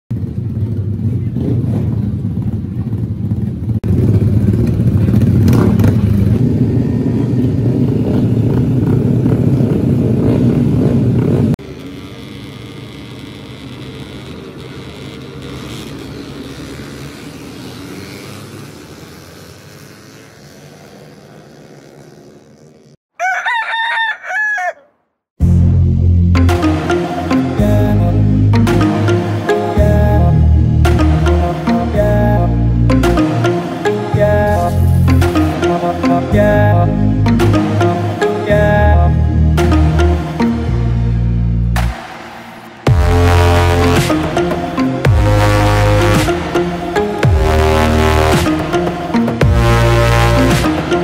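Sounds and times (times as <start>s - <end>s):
rooster crowing: 23.1s - 25.1s
loud low rumble: 38.6s - 48.7s.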